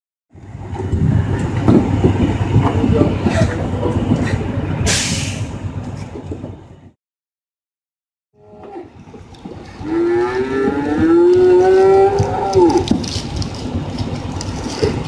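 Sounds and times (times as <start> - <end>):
truck trailer rumbling and clattering: 0.3 - 7.0, 8.9 - 15.0
sharp hissing clank: 4.8 - 5.6.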